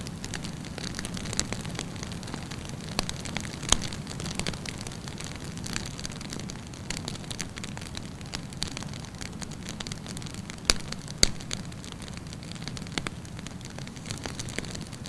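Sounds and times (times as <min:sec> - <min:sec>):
campfire crackling: 0:00.0 - 0:15.0
loud sharp pops: 0:09.3 - 0:15.0.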